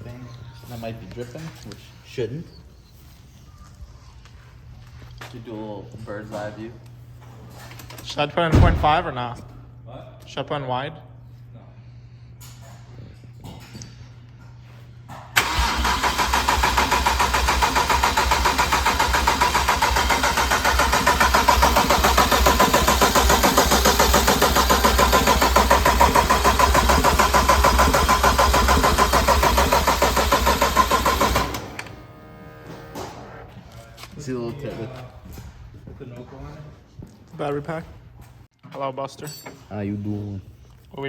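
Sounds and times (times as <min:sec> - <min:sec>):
starter motor cranking engine: 0:15.4 - 0:32.1.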